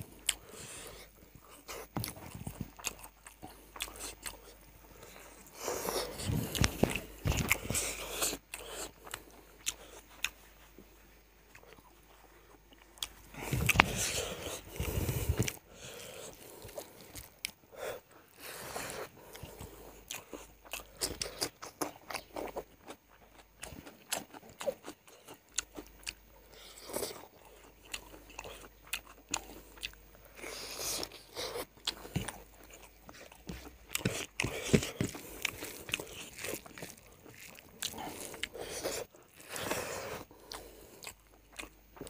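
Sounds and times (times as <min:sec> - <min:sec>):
person chewing crunchy food: 0:00.0 - 0:42.0.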